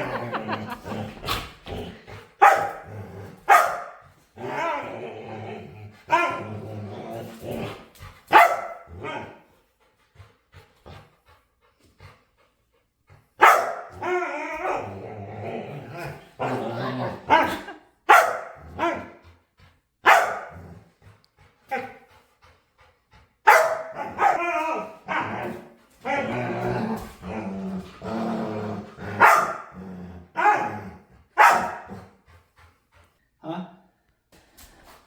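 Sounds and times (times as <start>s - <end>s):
dog growling: 0.0s - 3.5s, 4.3s - 8.0s, 14.0s - 17.8s, 24.0s - 32.2s
dog barking: 2.4s - 2.8s, 3.5s - 4.0s, 8.3s - 8.9s, 13.4s - 13.9s, 18.1s - 19.1s, 20.0s - 20.6s, 23.5s - 24.4s, 29.2s - 29.7s, 30.4s - 30.8s, 31.4s - 31.9s.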